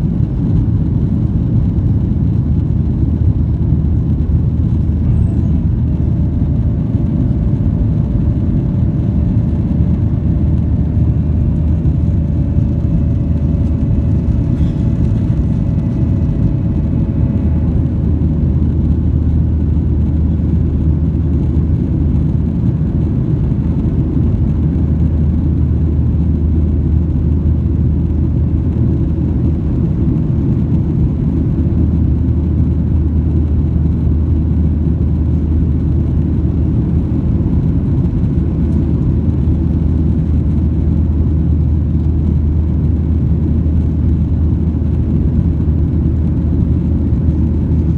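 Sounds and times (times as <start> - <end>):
airplane cabin rumble: 0.0 - 47.9
faint higher hum: 3.6 - 21.5.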